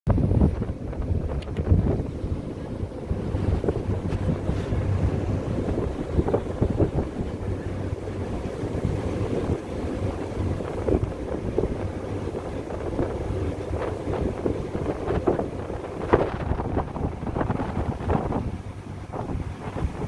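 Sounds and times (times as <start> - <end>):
boat engine humming: 0.1 - 20.0
wind buffeting microphone: 0.1 - 20.0.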